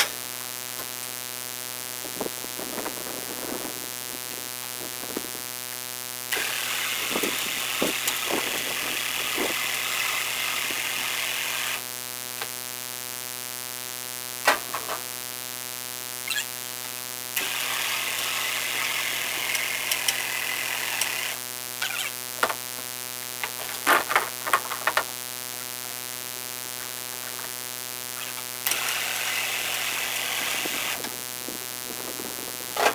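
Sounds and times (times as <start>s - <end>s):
steady mechanical hum: 0.0s - 12.6s, 16.4s - 32.9s
motor whirring: 6.3s - 11.8s, 17.4s - 22.1s, 28.2s - 31.1s.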